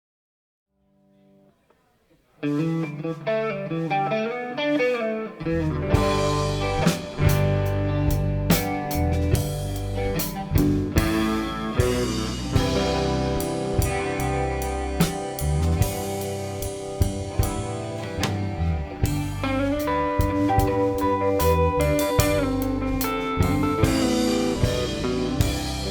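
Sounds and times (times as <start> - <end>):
blues guitar: 1.2 - 25.9
bass and drums: 5.4 - 25.9.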